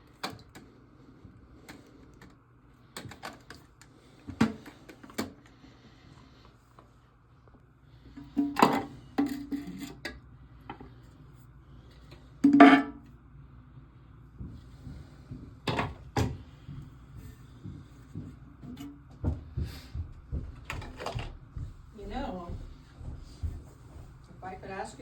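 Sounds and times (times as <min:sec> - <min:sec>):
plastic parts clicking and knocking: 0:01.7 - 0:03.7.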